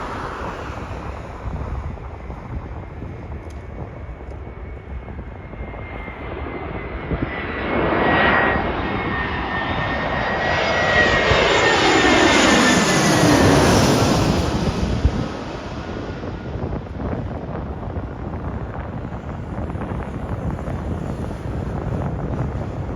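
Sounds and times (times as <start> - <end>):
high engine whine: 0.0 - 17.0
jet airliner passing: 0.0 - 22.9.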